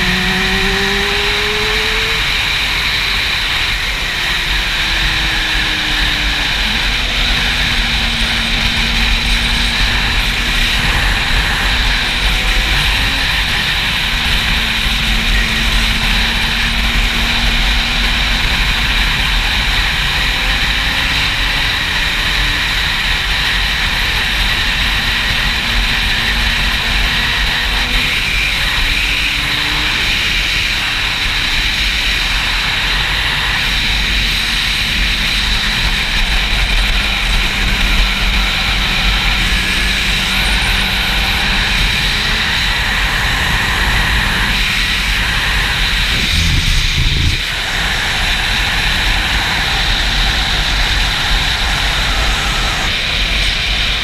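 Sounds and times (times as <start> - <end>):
faint motorcycle engine: 0.0 - 54.0
wind buffeting microphone: 31.4 - 54.0.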